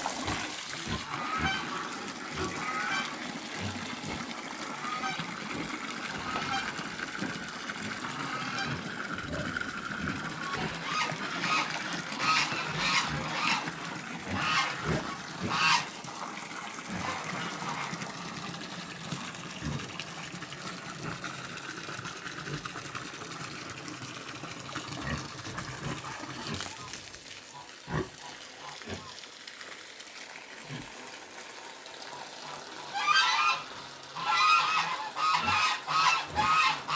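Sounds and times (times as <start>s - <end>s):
rush like running water: 0.0s - 36.9s
geese honking: 4.8s - 5.3s, 6.2s - 7.0s, 8.1s - 9.0s, 10.4s - 15.9s, 32.9s - 36.9s.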